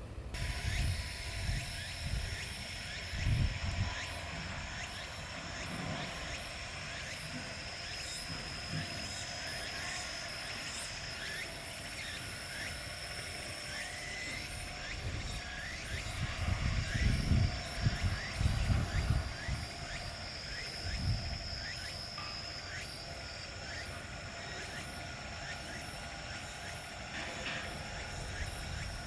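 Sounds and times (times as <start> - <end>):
wind buffeting microphone: 0.1 - 4.8, 14.5 - 20.2, 20.8 - 21.6
high-pitched insect buzz: 0.4 - 29.0.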